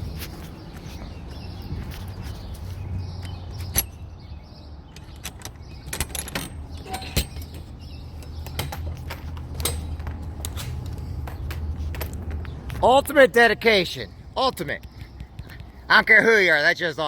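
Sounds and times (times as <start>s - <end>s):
metal knocking and clinking: 4.9s - 12.2s.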